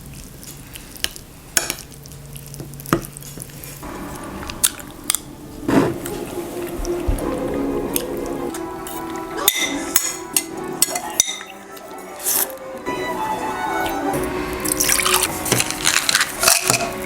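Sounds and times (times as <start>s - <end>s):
background din: 3.8s - 17.0s
dishes and cutlery clinking: 7.9s - 12.9s, 14.1s - 17.0s.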